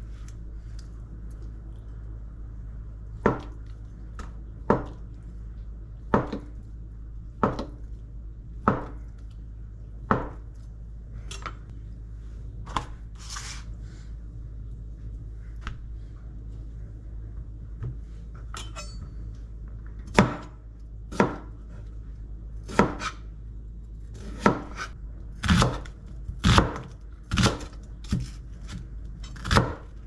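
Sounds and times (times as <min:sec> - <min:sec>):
knife chopping on cutting board: 0:21.1 - 0:21.5, 0:22.7 - 0:23.2, 0:24.2 - 0:28.8.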